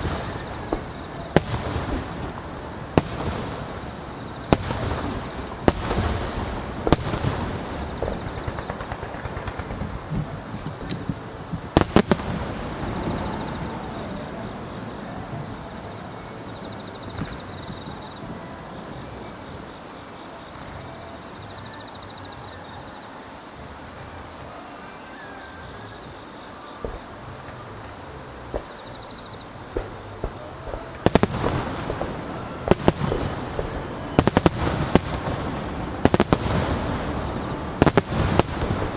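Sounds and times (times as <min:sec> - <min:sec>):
scattered firework pops: 0:00.0 - 0:16.1, 0:17.0 - 0:18.4, 0:26.8 - 0:38.9
fireworks bangs with crackling: 0:00.0 - 0:20.8, 0:26.8 - 0:38.9.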